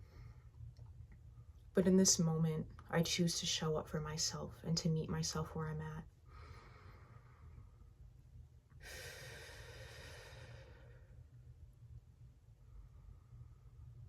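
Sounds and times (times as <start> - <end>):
woman breathing softly: 6.2 - 7.9, 8.7 - 11.4.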